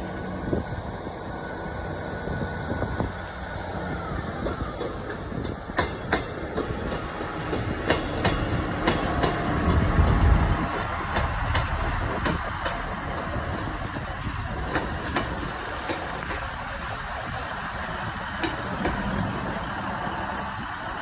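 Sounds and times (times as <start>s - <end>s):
train engine rumble: 0.0s - 21.0s.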